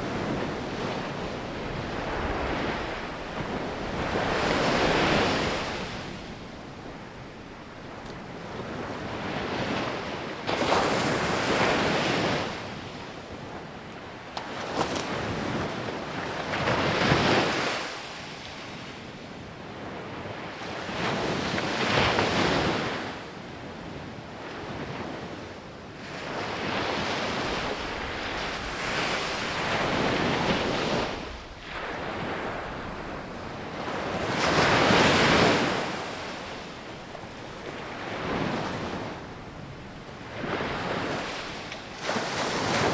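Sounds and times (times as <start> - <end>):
sea waves breaking on beach: 0.0 - 12.5, 26.2 - 42.9.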